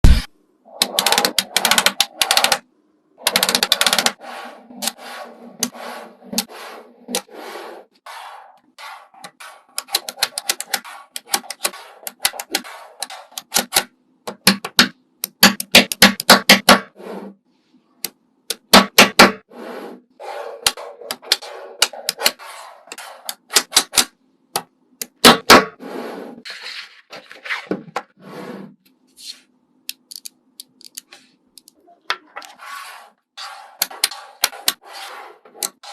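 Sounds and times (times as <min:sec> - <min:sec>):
scraping and rubbing: 0:03.7 - 0:13.5, 0:19.4 - 0:23.8, 0:25.8 - 0:29.6, 0:32.1 - 0:35.9
sharp clicks and taps: 0:09.8 - 0:16.8.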